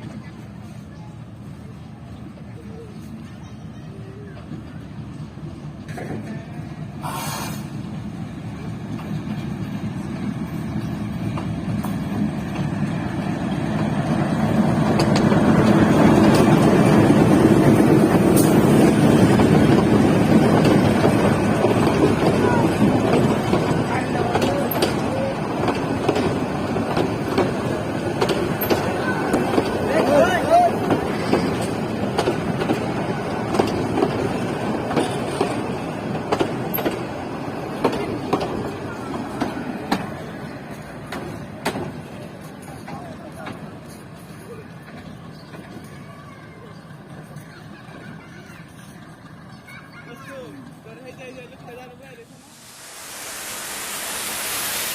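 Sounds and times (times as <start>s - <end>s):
passenger train rumble: 0.0s - 54.9s.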